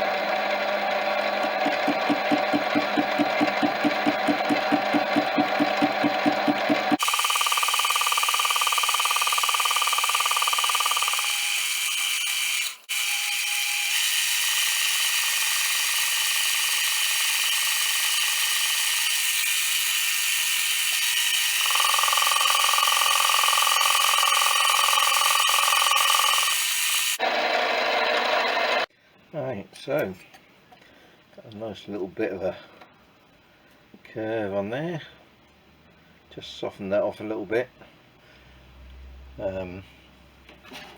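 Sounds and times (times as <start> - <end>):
lathe motor and gears whining: 0.0 - 18.5, 21.3 - 28.9.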